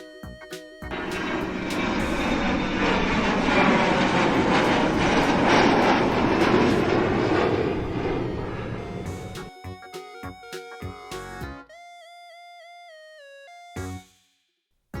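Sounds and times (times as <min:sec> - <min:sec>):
vehicle engine passing by: 0:00.9 - 0:09.4.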